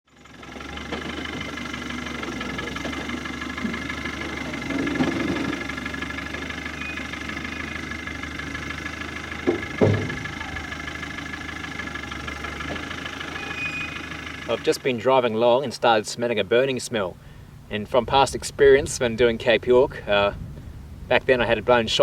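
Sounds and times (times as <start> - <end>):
car engine idling: 0.1 - 21.1
sharp knocks: 9.4 - 10.4.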